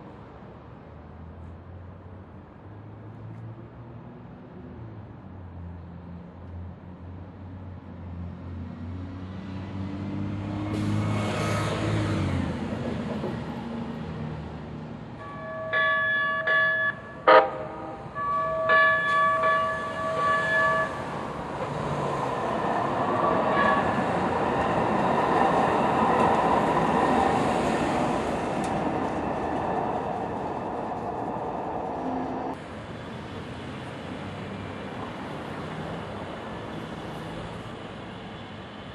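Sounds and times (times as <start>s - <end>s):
train horn blasts: 15.2s - 21.0s, 23.2s - 24.1s.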